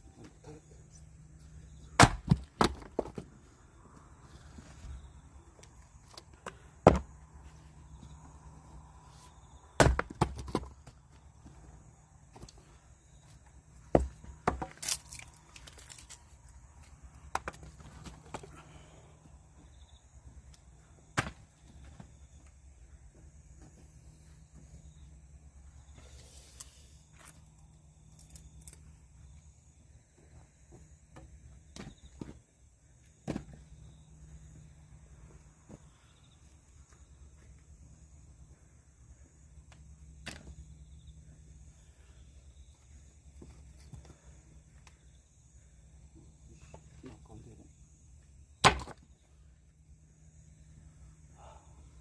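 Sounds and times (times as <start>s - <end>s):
low steady hum: 0.0s - 52.0s
axe chopping firewood: 1.9s - 3.3s, 6.8s - 7.2s, 9.8s - 10.8s, 13.9s - 15.0s, 21.1s - 21.4s, 48.6s - 49.0s.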